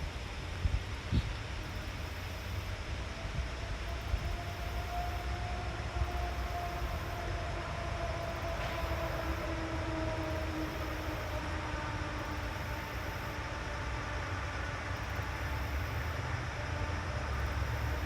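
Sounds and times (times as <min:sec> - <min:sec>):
distant vehicle rumble: 0:02.6 - 0:18.0.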